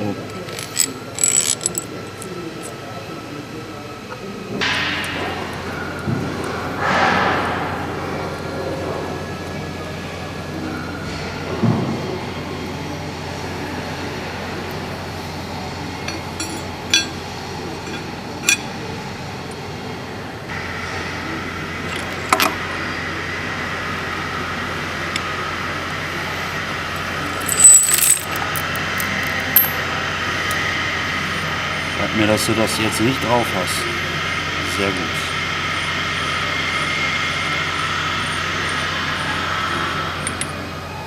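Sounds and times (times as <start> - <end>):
steady background hum: 0.0 - 41.0
metal parts clinking: 0.3 - 2.7, 16.1 - 17.2, 17.8 - 18.7, 27.3 - 29.9.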